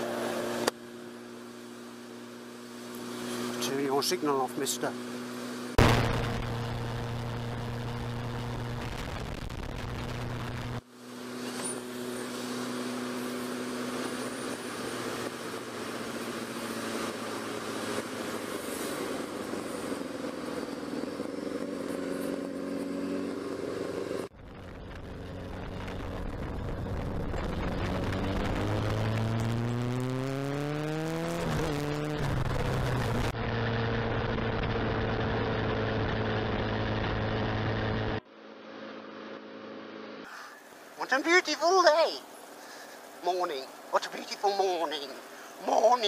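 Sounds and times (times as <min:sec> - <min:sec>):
wind and road noise: 0:00.0 - 0:46.0
motorcycle engine running: 0:04.5 - 0:39.8.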